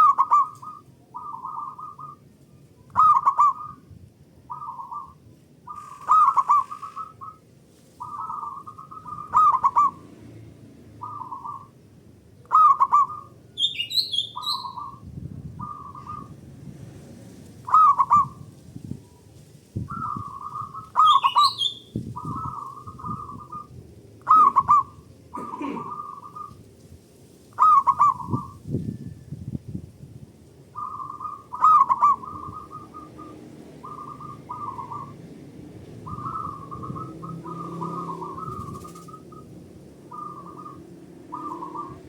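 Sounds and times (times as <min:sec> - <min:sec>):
doves cooing: 0:00.0 - 0:02.3, 0:02.9 - 0:03.9, 0:04.5 - 0:10.4, 0:12.5 - 0:15.0, 0:17.7 - 0:18.5, 0:19.8 - 0:26.6, 0:27.6 - 0:29.2, 0:30.8 - 0:42.0
high twittering bird call: 0:00.0 - 0:07.4, 0:08.0 - 0:10.2, 0:12.5 - 0:16.4, 0:19.8 - 0:26.6, 0:30.7 - 0:42.0.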